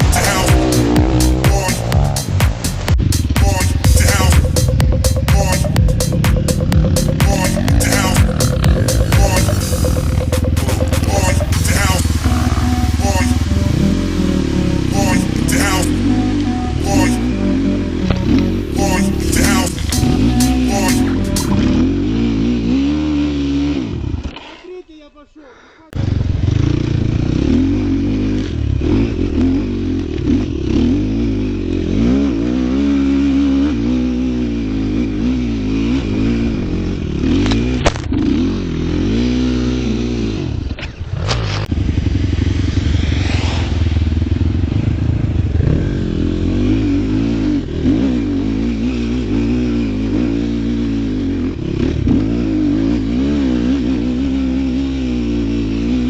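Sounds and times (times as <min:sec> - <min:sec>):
vehicle engine revving: 0:00.0 - 0:16.1, 0:21.4 - 0:24.3.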